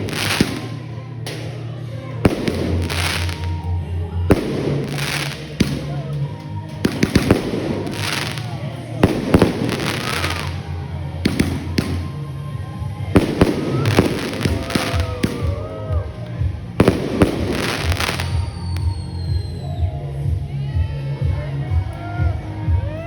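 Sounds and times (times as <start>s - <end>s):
fireworks banging and crackling: 0.0s - 19.6s
music with steady bass beat: 0.0s - 23.0s
gliding whistle tones: 18.3s - 19.9s.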